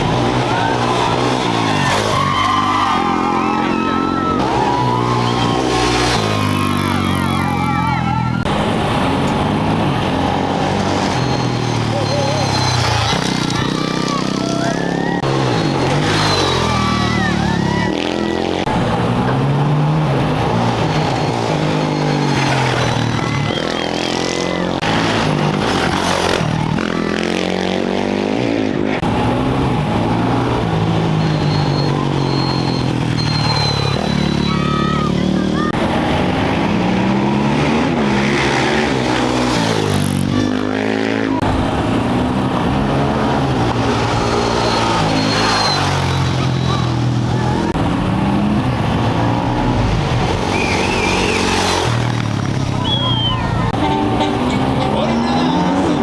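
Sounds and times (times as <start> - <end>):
motorcycle engines revving hard: 0.0 - 56.0.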